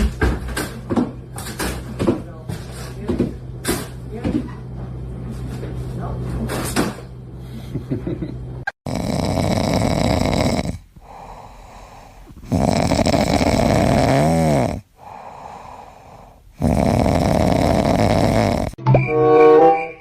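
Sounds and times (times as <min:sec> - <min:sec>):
pet snoring loudly: 0:08.8 - 0:18.8.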